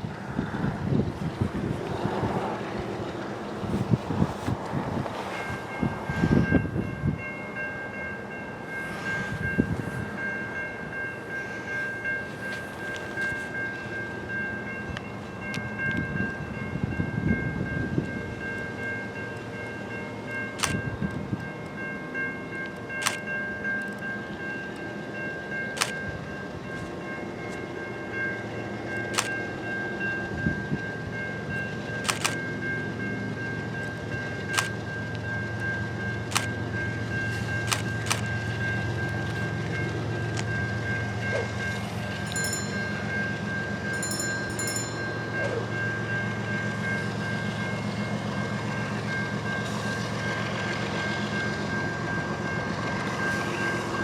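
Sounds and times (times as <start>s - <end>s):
freight train rumbling past: 0.0s - 54.0s
wheels clicking over rail joints: 31.5s - 48.0s.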